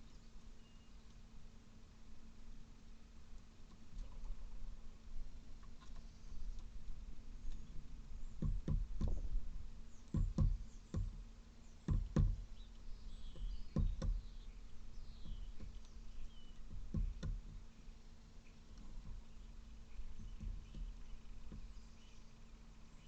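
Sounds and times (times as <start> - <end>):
faint bird chirps: 0.0 - 1.3, 9.0 - 23.0
raven pecking at egg: 15.0 - 17.9.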